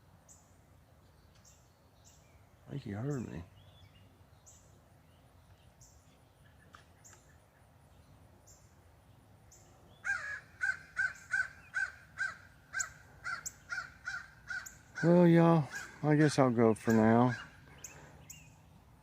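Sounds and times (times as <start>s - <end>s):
crows cawing: 10.0s - 18.2s.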